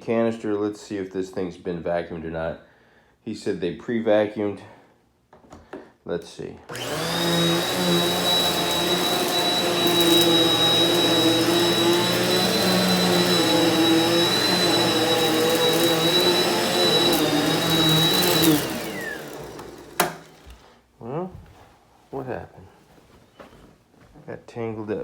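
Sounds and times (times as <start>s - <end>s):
vacuum cleaner running on carpet: 6.7s - 20.6s.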